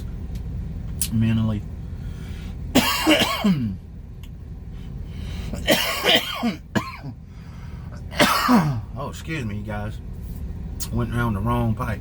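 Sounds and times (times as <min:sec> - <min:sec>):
man coughing hard: 0:02.7 - 0:03.8, 0:05.6 - 0:07.2, 0:08.0 - 0:09.0.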